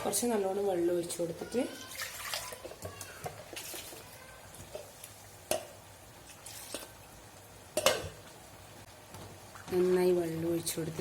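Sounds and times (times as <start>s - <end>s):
spoon knocking in metal pot: 5.5s - 5.8s.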